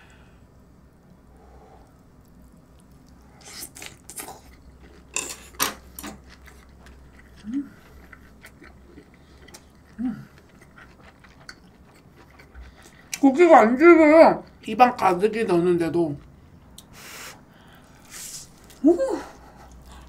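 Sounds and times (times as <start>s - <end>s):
person chewing food: 1.8s - 13.2s, 16.2s - 20.0s
low closed-mouth hums: 6.2s - 13.2s.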